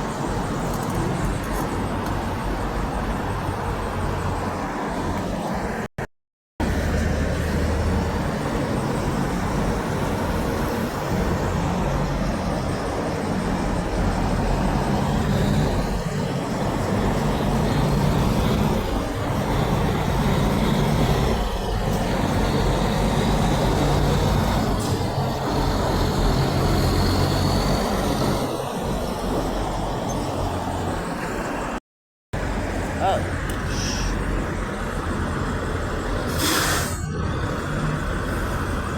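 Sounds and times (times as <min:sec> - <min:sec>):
diesel truck engine rumble: 0:06.6 - 0:31.8, 0:32.4 - 0:38.9
tyre and road noise: 0:06.6 - 0:31.8.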